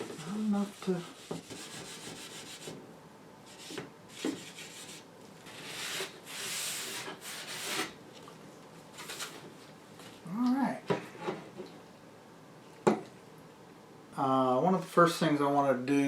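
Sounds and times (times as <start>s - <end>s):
steel wool rubbing wood panel: 0.0s - 2.8s.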